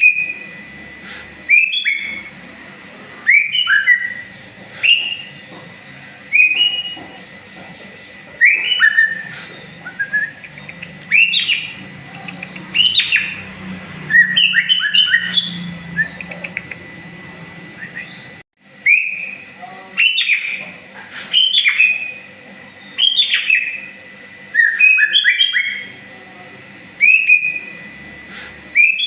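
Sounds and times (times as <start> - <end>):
songbird whistling: 1.5 - 2.3, 3.2 - 5.4, 6.3 - 7.0, 8.0 - 19.4, 20.0 - 20.6, 21.3 - 22.2, 22.8 - 25.9, 26.6 - 27.9, 28.7 - 29.0.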